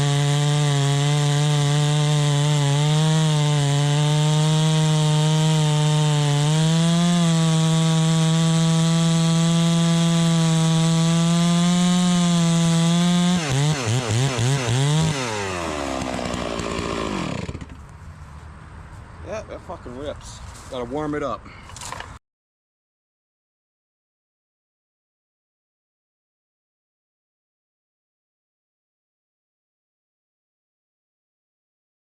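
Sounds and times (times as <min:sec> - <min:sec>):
chainsaw running at high revs: 0:00.0 - 0:17.8.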